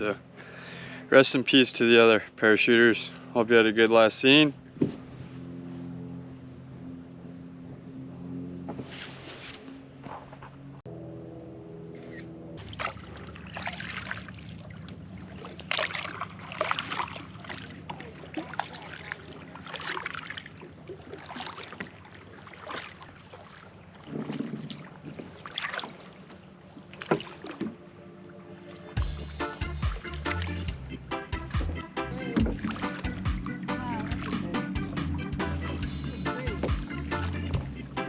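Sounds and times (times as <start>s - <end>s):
paddle splashing in water: 12.6s - 30.8s, 31.4s - 35.2s
steady low hum: 29.0s - 38.0s.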